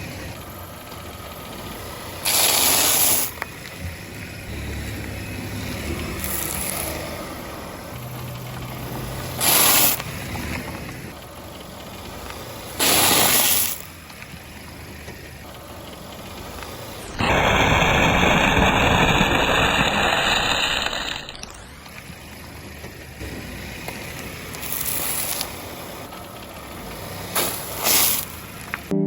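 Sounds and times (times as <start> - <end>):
wafers crunching under tyre: 5.4 - 7.7, 23.4 - 26.0.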